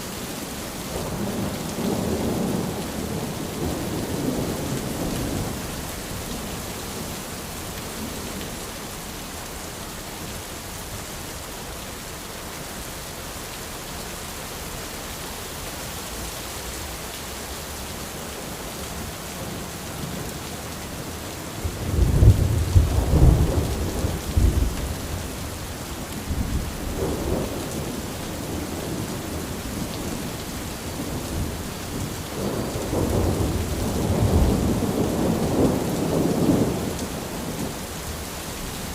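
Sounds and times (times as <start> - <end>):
rain on an umbrella: 0.0 - 38.9
thunder rumbling: 21.6 - 37.9.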